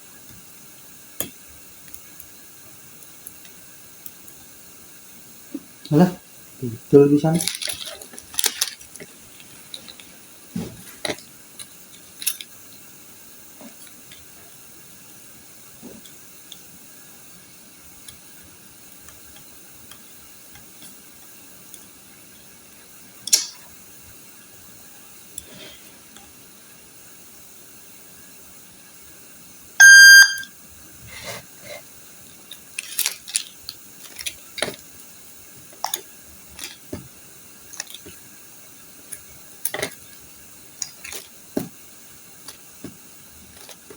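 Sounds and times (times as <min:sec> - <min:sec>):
loud electronic beep: 0:29.8 - 0:30.5.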